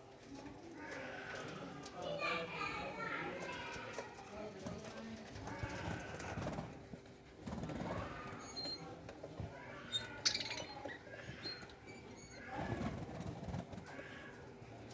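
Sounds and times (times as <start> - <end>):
parrots chattering softly: 9.7 - 12.9.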